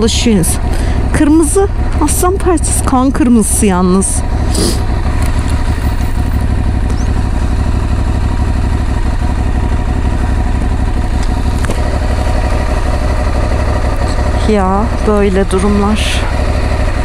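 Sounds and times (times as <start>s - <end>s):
motorcycle engine running steadily: 0.0s - 17.0s.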